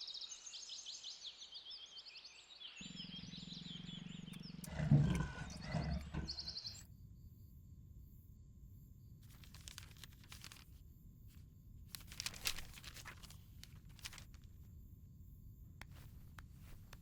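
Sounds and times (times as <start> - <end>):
rustling and crinkling: 4.6 - 6.6, 9.2 - 14.7, 15.8 - 17.0.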